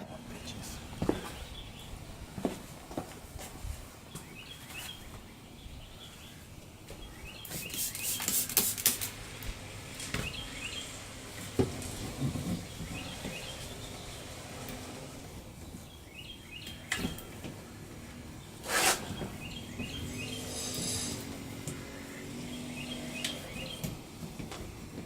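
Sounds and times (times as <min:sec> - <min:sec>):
loud hissing noise: 0:07.3 - 0:15.4, 0:18.5 - 0:23.8
small bird chirping: 0:19.1 - 0:23.8.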